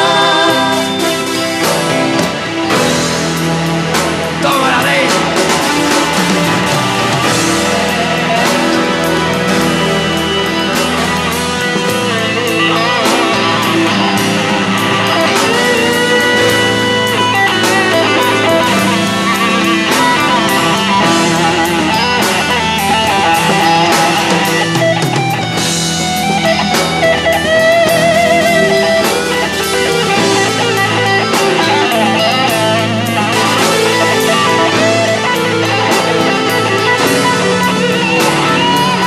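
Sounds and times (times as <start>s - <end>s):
bass and drums: 0.0s - 39.0s
electric guitar bending notes: 0.0s - 39.0s.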